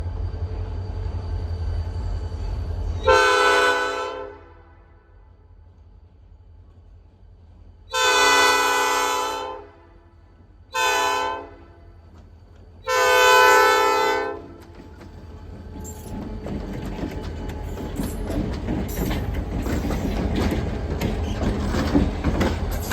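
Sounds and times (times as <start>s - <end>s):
locomotive air horn blasts: 3.0s - 4.9s, 7.9s - 11.9s, 12.9s - 14.6s
train wheel clatter: 12.0s - 22.9s.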